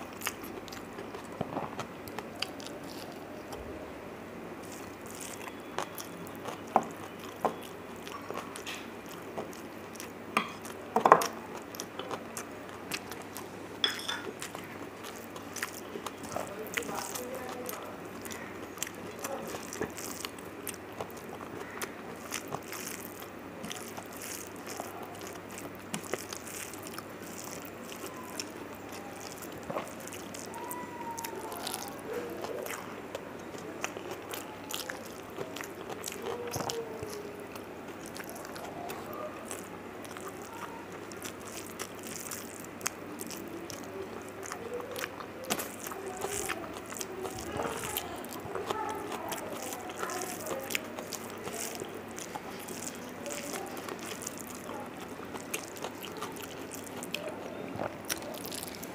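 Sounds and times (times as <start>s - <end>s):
wet chewing: 0.0s - 58.9s
lip smacks: 14.2s - 58.9s
fingers mixing rice on steel plate: 45.0s - 57.3s.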